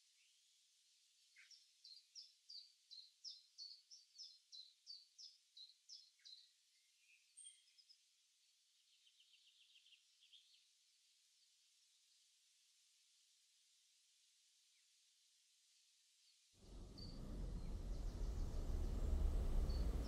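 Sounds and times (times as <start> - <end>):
low outdoor hiss: 0.0 - 20.0
bird chirping: 1.2 - 10.7, 16.6 - 20.0.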